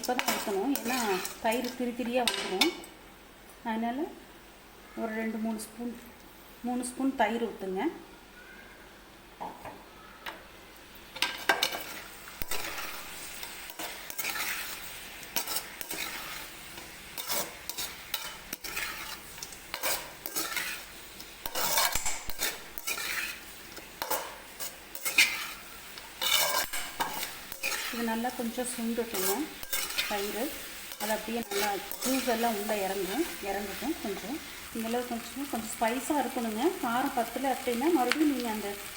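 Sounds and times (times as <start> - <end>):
utensil scraping a pan: 0.0 - 1.8, 11.2 - 33.2
food sizzling in a pan: 0.0 - 38.9.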